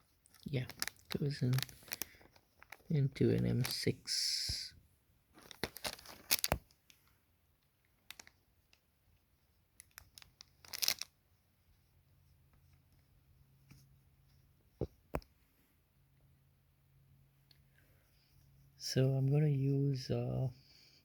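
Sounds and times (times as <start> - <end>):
packaging rustling: 0.3 - 2.9, 3.6 - 3.9, 5.4 - 6.8, 8.1 - 8.3, 9.8 - 11.1.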